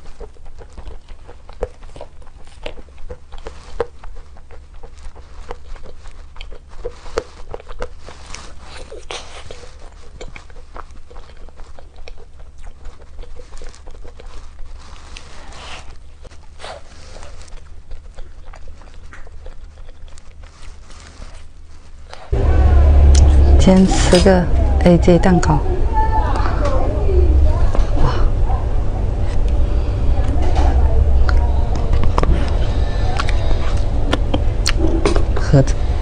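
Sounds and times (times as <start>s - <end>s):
person chewing: 0.0s - 22.4s, 31.2s - 35.6s
steady low hum: 0.0s - 36.0s.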